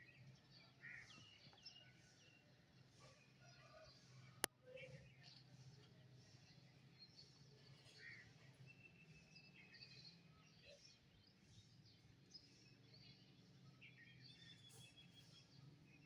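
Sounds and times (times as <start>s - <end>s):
songbirds chirping: 0.0s - 16.0s.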